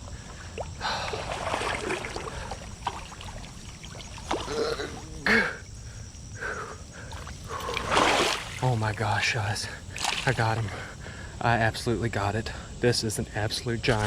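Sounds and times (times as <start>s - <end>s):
creek flowing: 0.0s - 5.5s, 7.1s - 10.8s
fish splashing in water: 0.5s - 5.0s, 7.1s - 8.8s, 9.9s - 10.4s.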